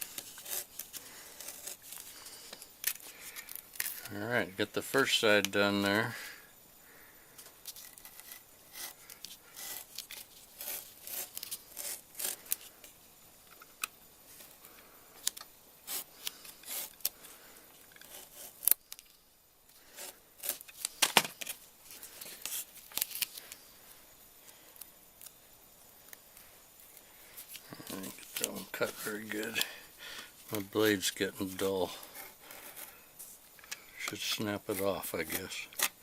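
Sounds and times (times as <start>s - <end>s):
knife blade rasping on sandpaper: 0.0s - 2.4s, 7.7s - 12.6s, 15.8s - 17.1s, 18.0s - 18.8s, 19.8s - 20.7s.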